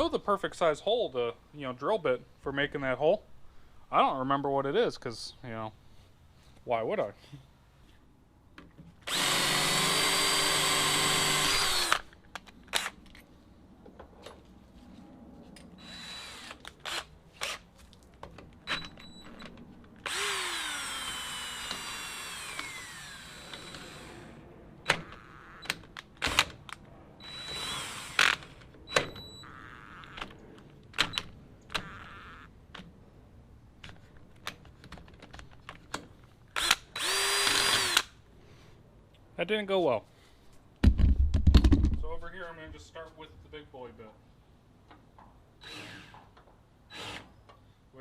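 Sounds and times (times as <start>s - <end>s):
power drill drilling: 9.1s - 12.1s, 15.8s - 17.6s, 20.0s - 24.3s, 27.2s - 28.5s, 31.8s - 32.5s, 36.6s - 38.1s, 45.6s - 46.2s, 46.9s - 47.3s.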